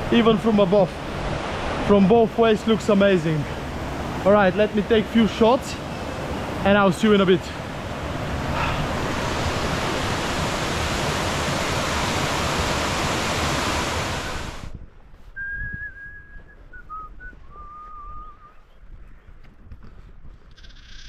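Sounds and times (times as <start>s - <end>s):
waterfall rushing: 0.0s - 14.7s
thin whistled tones: 15.3s - 18.7s.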